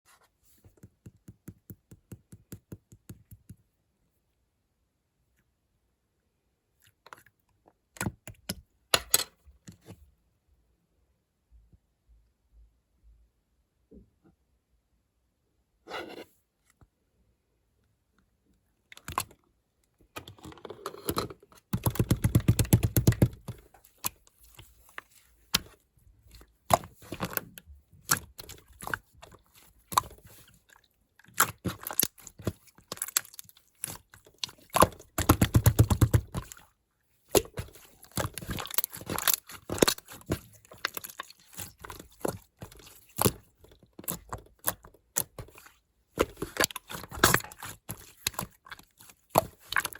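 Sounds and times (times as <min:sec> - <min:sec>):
hands squishing slime: 0:21.6 - 0:49.9.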